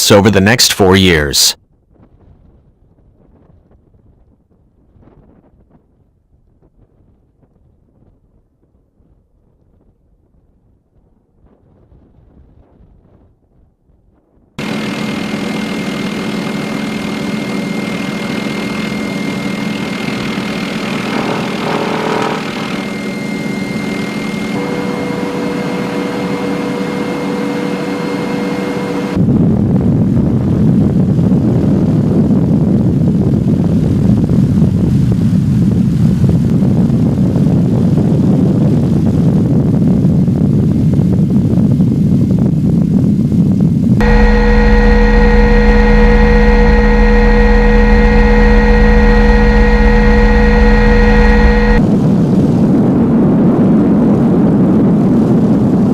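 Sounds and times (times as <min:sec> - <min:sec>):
aircraft engines running: 0:14.6 - 0:29.9, 0:44.0 - 0:53.4.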